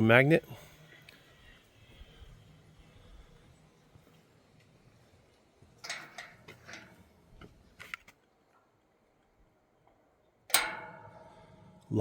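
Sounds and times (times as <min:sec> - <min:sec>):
gate lock metal clicks: 0:05.8 - 0:07.0, 0:10.5 - 0:11.9.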